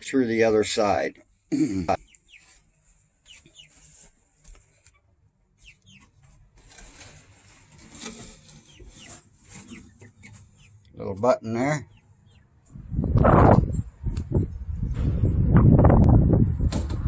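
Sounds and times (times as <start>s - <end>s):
chickens clucking faintly: 1.5s - 12.6s.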